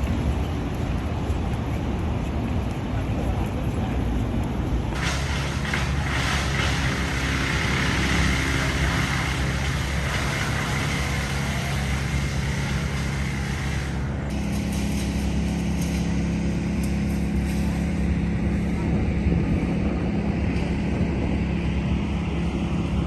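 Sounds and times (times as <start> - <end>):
large vehicle engine humming: 0.0 - 23.0
hiss: 5.0 - 15.1.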